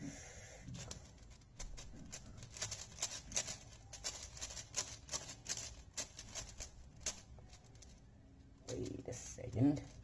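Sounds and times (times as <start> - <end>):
speed cube layers clicking: 0.8 - 7.7.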